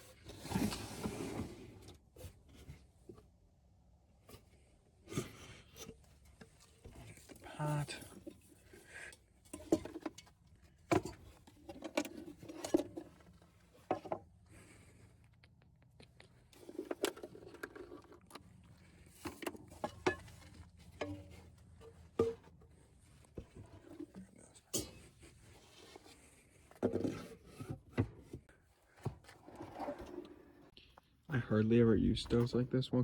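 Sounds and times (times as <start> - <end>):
rustling and clatter: 4.2 - 30.8
cooking gear clicks and knocks: 16.1 - 22.7.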